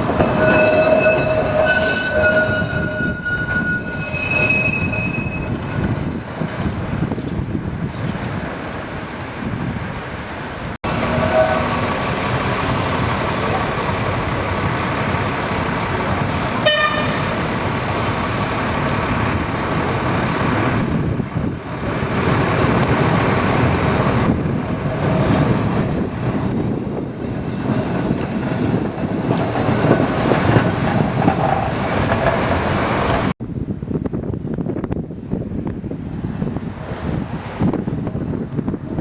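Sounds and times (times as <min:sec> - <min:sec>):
tram horn toot: 0:00.0 - 0:06.2, 0:10.9 - 0:12.6, 0:16.4 - 0:17.6
tram wheels and motors rumbling: 0:00.0 - 0:39.0.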